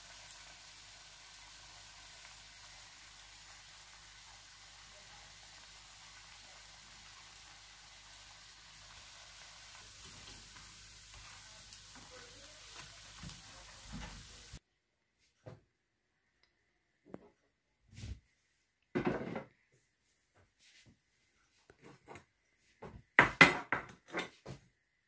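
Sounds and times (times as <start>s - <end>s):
chicken sizzling in hot oil: 0.0s - 14.6s.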